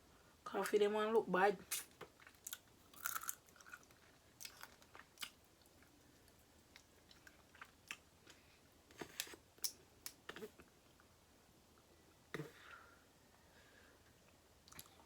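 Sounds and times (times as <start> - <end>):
chewing and mouth sounds: 1.7 - 8.4, 14.7 - 15.0.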